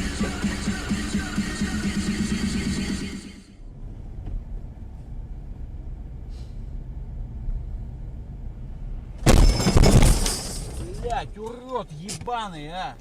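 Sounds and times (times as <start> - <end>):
car driving road and engine noise: 3.6 - 9.3, 10.7 - 13.0.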